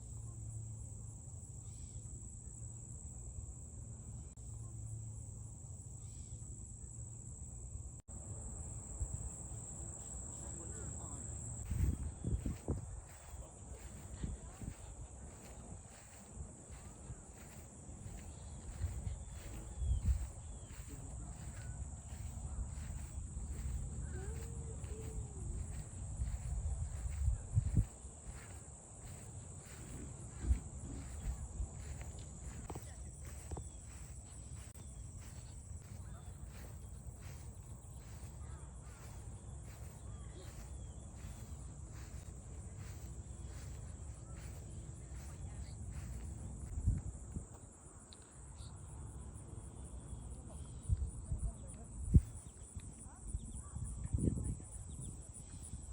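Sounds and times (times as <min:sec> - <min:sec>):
high-pitched insect drone: 0:09.1 - 0:46.3
wind rumble on microphone: 0:11.5 - 0:47.8, 0:50.7 - 0:55.9.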